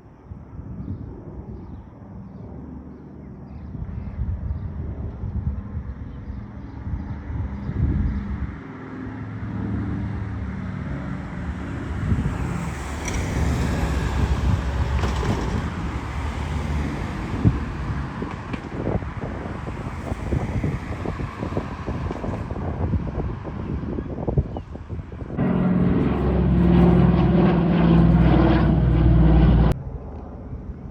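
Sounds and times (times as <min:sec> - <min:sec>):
wind buffeting microphone: 0:00.2 - 0:02.6, 0:03.5 - 0:08.6, 0:11.2 - 0:29.8
propeller plane engines droning: 0:00.2 - 0:30.9.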